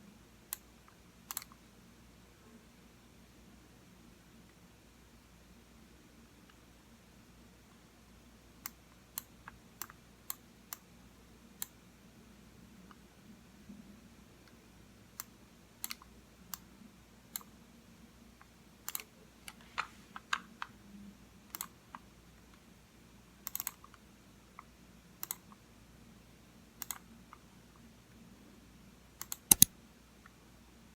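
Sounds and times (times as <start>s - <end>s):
computer mouse clicking: 1.3s - 1.6s, 15.2s - 16.6s, 18.9s - 19.6s, 21.5s - 21.8s, 23.4s - 24.0s, 25.2s - 25.6s, 26.8s - 27.0s, 29.2s - 29.7s.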